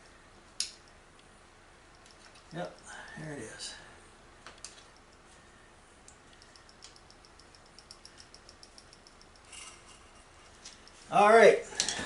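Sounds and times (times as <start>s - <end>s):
small evenly spaced ticks: 0.6s - 3.2s, 4.6s - 11.2s
metallic clicking of hand tool: 6.3s - 10.0s.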